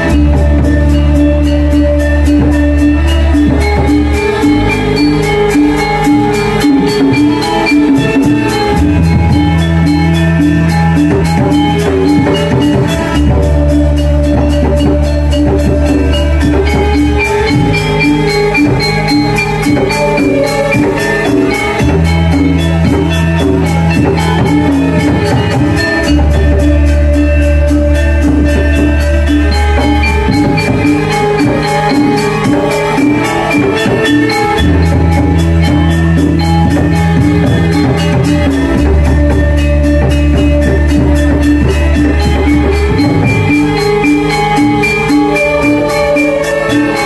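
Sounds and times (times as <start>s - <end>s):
drums: 0.0s - 47.0s
live ensemble music: 0.0s - 47.0s
metal-keyed gamelan notes: 0.0s - 47.0s
percussion beat: 0.0s - 47.0s.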